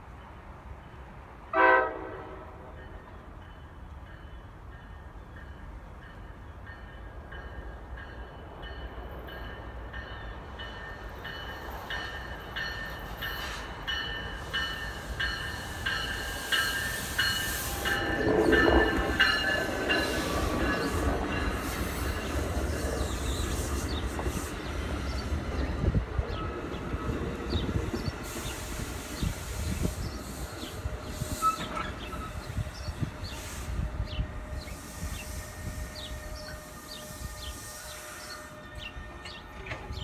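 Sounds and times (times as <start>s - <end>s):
electric train pulling in: 2.5s - 40.0s
wheel or brake squeal: 31.2s - 32.4s.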